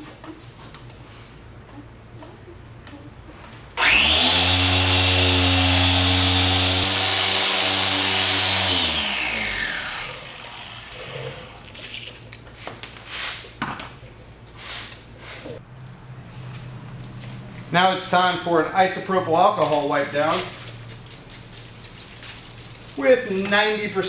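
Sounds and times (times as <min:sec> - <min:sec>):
polisher humming and whining: 0:03.8 - 0:10.9.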